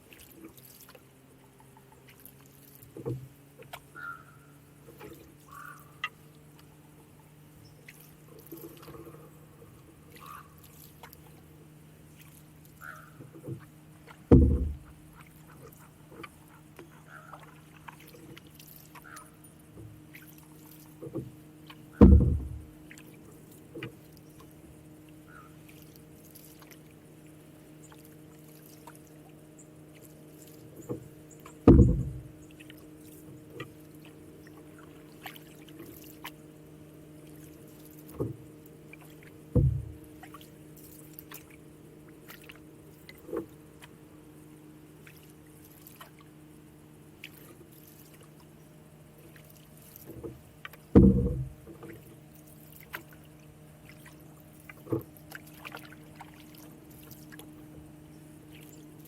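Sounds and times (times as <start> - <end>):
paddle drips and trickles: 0.0 - 59.0
light knocks: 14.3 - 14.9, 21.0 - 22.7, 30.8 - 32.3, 39.5 - 40.0, 50.1 - 52.0
loud dull thumps: 14.3 - 14.9, 22.0 - 22.7, 31.6 - 32.3, 39.6 - 40.0, 50.9 - 51.6.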